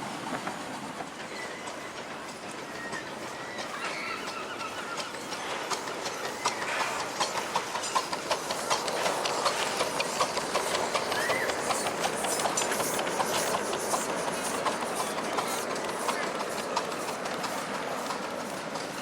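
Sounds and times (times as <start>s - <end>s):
miniature train wheels clicking: 1.0s - 19.0s.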